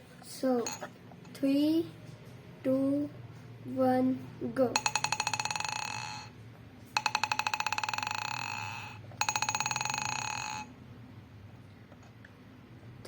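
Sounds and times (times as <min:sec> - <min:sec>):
test tubes rattling and ringing: 0:00.5 - 0:01.0, 0:04.7 - 0:06.4, 0:07.0 - 0:10.8.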